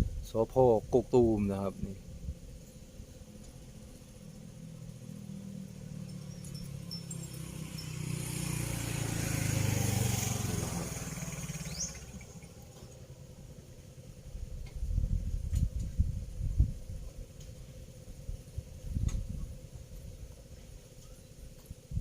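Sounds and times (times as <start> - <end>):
motor vehicle passing by: 3.0 - 15.4.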